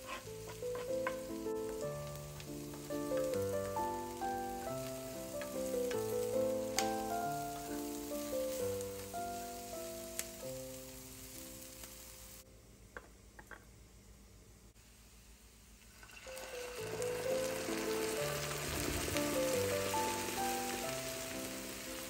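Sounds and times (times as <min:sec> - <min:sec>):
vegetables sizzling in butter: 0:00.0 - 0:12.5, 0:14.8 - 0:22.0
gentle single-note melody: 0:00.7 - 0:11.4.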